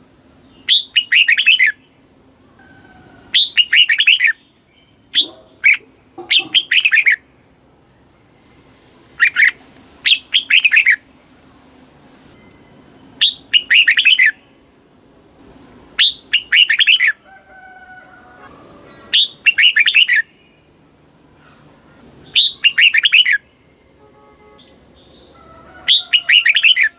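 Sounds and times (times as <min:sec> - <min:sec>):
bird singing warbled phrases: 0:00.4 - 0:02.4, 0:03.3 - 0:07.3, 0:09.2 - 0:11.1, 0:12.4 - 0:14.6, 0:16.0 - 0:17.4, 0:18.8 - 0:26.9.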